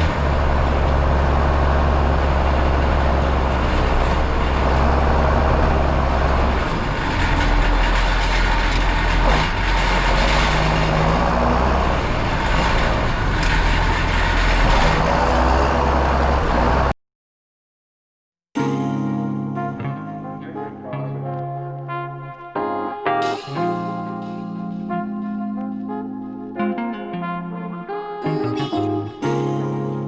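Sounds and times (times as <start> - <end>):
tractor diesel engine running: 0.0 - 16.9.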